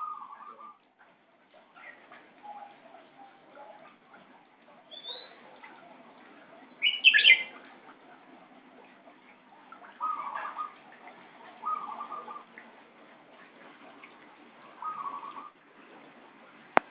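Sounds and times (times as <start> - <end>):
bird lower stuttering calls: 0.0 - 0.8, 4.8 - 7.7, 8.4 - 13.2, 13.8 - 15.6.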